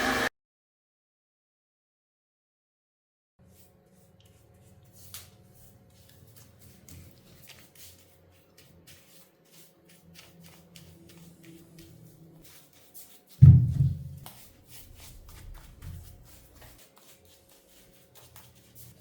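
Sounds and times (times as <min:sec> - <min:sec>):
low steady hum: 0:13.4 - 0:14.4.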